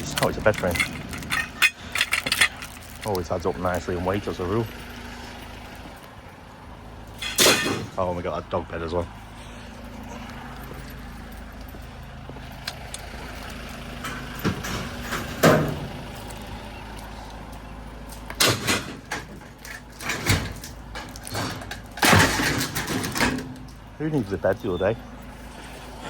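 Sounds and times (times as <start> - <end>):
vehicle engine idling: 0.0 - 26.0
scrap knocking and clattering: 14.0 - 16.0, 18.3 - 23.7.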